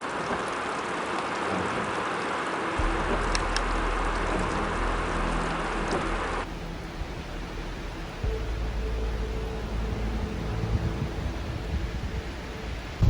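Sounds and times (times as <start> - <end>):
heavy rain hissing: 0.0 - 13.0
low rumble: 2.8 - 13.0.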